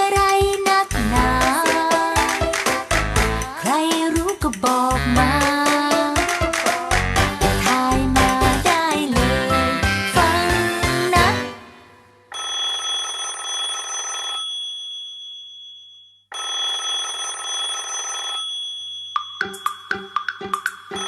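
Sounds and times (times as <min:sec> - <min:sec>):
children's music: 0:00.0 - 0:12.2, 0:19.2 - 0:21.0
telephone bell ringing: 0:12.3 - 0:19.9.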